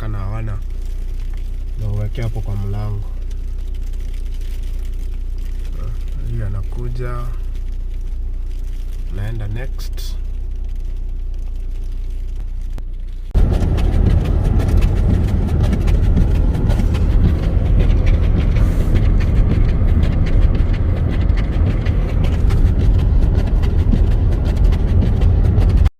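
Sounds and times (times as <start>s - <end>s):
wind buffeting microphone: 13.3s - 25.9s.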